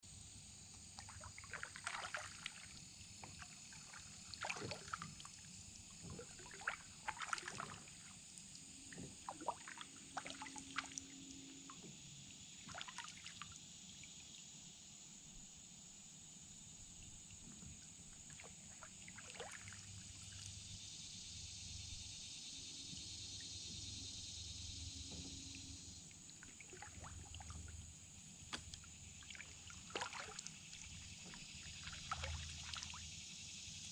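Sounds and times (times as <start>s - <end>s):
paddle splashing in water: 1.0s - 2.7s, 3.3s - 5.2s, 6.0s - 8.1s, 18.1s - 19.7s, 26.2s - 27.8s, 28.4s - 32.9s
steady high-pitched hum: 19.7s - 33.9s.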